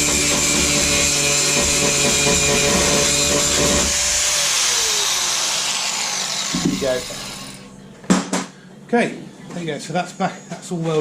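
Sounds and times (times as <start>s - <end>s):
power grinder running and spinning down: 0.0s - 7.7s.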